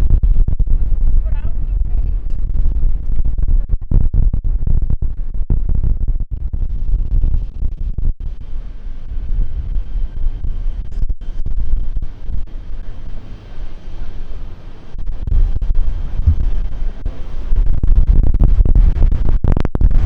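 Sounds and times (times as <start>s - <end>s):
wind buffeting microphone: 15.1s - 20.0s.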